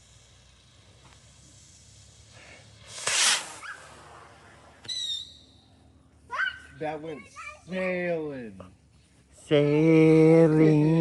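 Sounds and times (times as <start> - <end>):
firework launching whoosh: 0.0 - 5.2.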